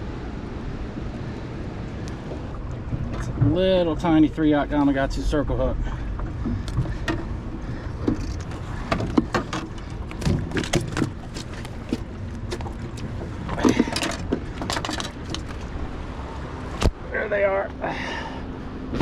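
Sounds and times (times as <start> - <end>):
steady low rumble: 0.0 - 19.0
clicks and knocks of handling: 8.0 - 15.7.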